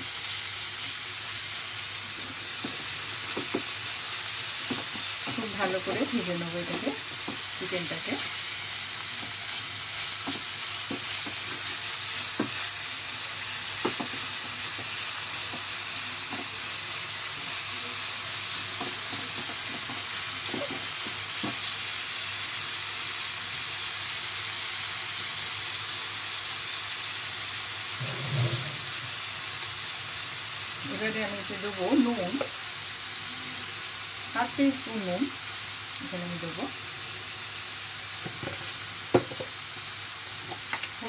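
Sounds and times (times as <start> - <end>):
chicken sizzling in oil: 0.0 - 41.0
spatula tapping pan: 10.2 - 11.7.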